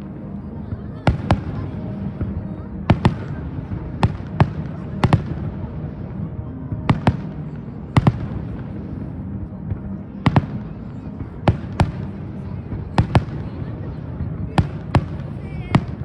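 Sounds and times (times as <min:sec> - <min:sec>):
background murmur: 0:00.0 - 0:16.0
fireworks bursting: 0:00.8 - 0:06.2, 0:09.7 - 0:16.0.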